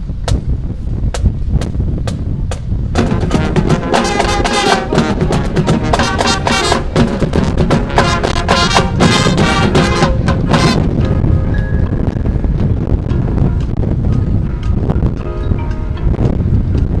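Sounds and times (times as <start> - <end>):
drums and percussion hits: 1.2 - 11.2
marching band brass chords: 3.0 - 11.1.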